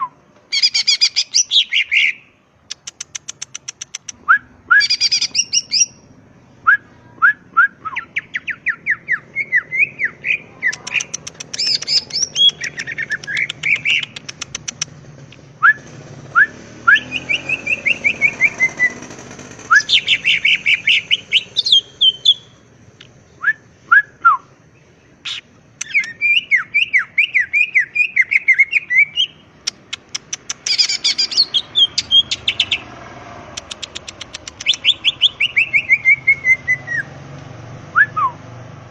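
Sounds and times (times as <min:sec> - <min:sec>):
bird singing whistled notes: 0:00.0 - 0:03.0, 0:04.2 - 0:14.2, 0:15.6 - 0:22.6, 0:23.4 - 0:24.5, 0:25.2 - 0:29.8, 0:30.6 - 0:32.9, 0:33.9 - 0:37.2, 0:37.9 - 0:38.4.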